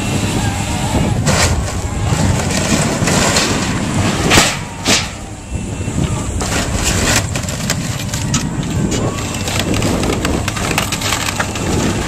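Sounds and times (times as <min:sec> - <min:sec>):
heavy machinery engine rumble: 0:00.0 - 0:12.0
sharp bangs: 0:01.1 - 0:11.6
wood cracking and debris crashing: 0:01.2 - 0:05.2, 0:06.3 - 0:12.0.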